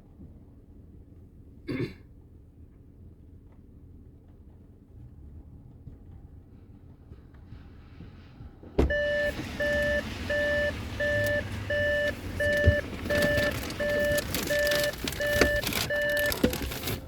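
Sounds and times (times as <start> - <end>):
electronic warning beeps: 8.9 - 16.8
rustling: 9.3 - 17.0.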